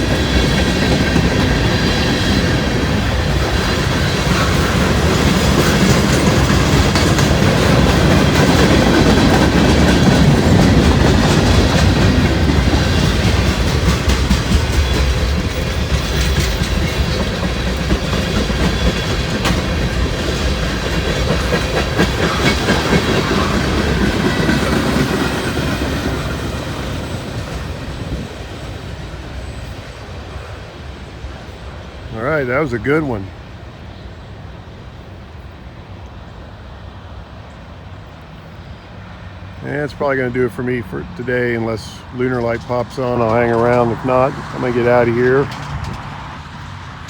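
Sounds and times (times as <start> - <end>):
wheels clicking over rail joints: 0.0 - 30.4, 40.0 - 47.0
freight train rolling past: 0.0 - 47.0.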